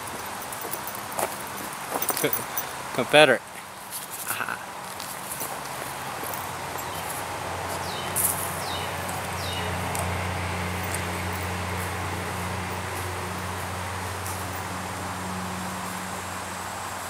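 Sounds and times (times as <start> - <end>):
footsteps on dirt and leaves: 0.0 - 2.6, 3.5 - 16.2
bird chirping: 7.8 - 9.8.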